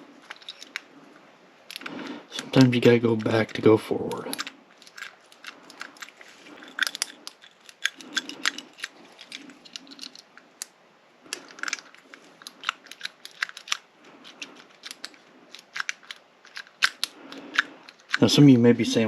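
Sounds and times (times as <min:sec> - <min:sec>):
lock pick clicks and scrapes: 0:00.2 - 0:00.9, 0:01.7 - 0:02.6, 0:04.2 - 0:10.4, 0:11.3 - 0:18.2.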